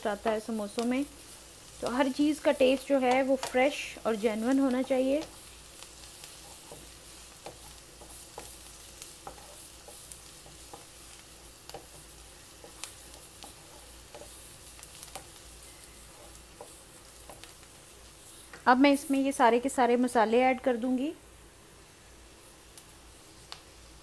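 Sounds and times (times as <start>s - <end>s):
food sizzling in a pan: 0.0s - 24.0s
spatula scraping a pan: 4.8s - 18.5s.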